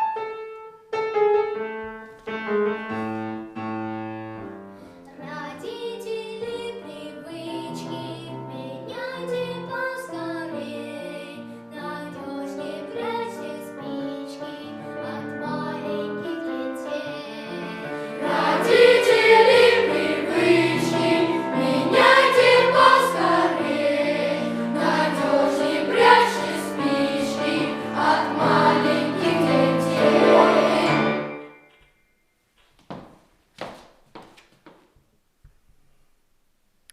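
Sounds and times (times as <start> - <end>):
piano accompaniment: 0.0 - 32.2
boys' choir singing: 17.2 - 31.4.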